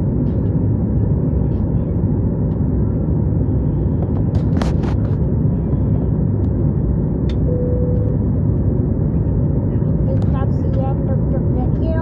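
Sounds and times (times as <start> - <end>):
airplane cabin rumble: 0.0 - 12.0
brief steady tone: 7.4 - 8.2.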